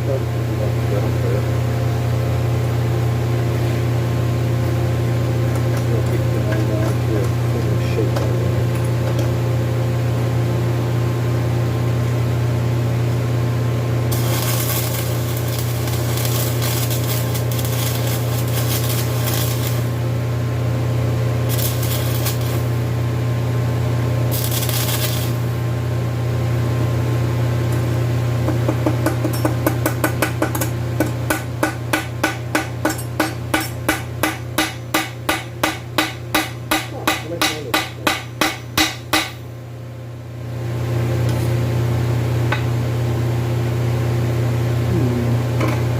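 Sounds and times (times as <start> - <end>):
electrical hum: 0.0 - 45.9
hammer striking metal: 28.5 - 39.4.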